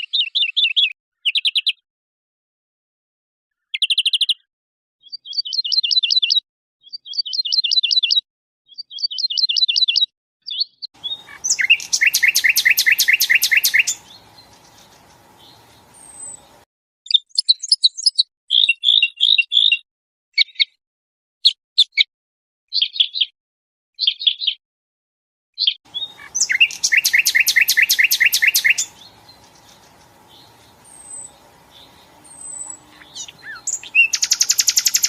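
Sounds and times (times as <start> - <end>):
background hiss: 11.0 - 16.6, 25.9 - 35.0
songbird trilling: 11.0 - 16.6, 25.9 - 35.0.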